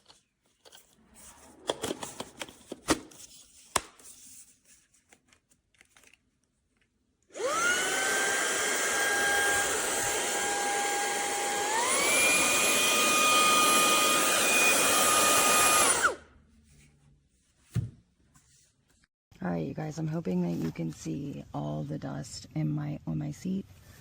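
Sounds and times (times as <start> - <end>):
handheld vacuum motor whining: 7.3 - 16.2.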